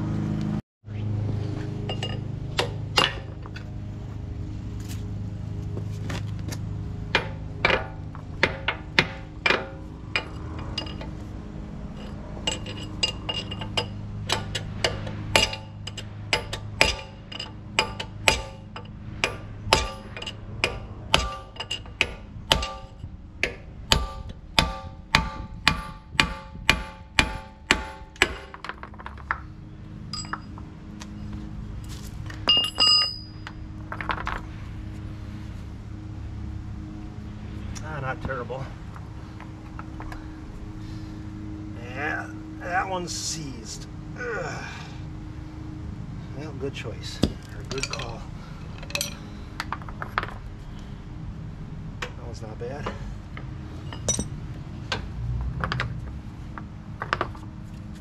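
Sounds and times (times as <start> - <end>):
hammer striking steel: 7.1 - 11.1, 12.5 - 28.6, 53.9 - 54.4.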